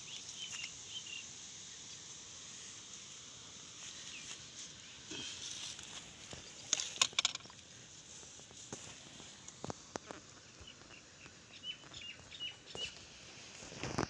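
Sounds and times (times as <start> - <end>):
small bird chirping: 0.0 - 1.3, 10.5 - 13.0.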